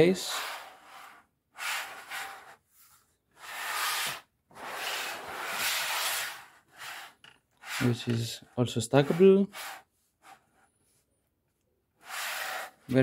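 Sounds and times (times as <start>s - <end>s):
hard plastic packaging rubbing: 3.4s - 10.5s.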